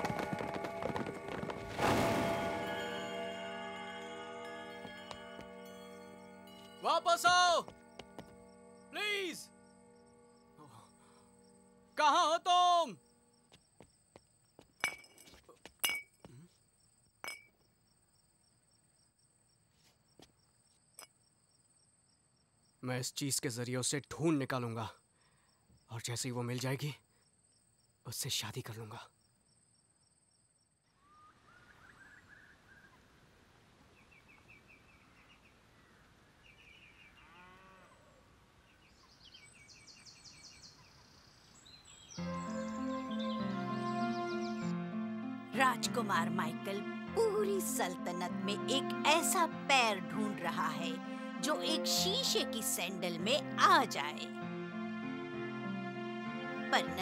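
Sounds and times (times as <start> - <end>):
crickets chirping: 0.0 - 32.1
cow mooing: 37.2 - 38.1
small birds chirping: 38.6 - 44.7.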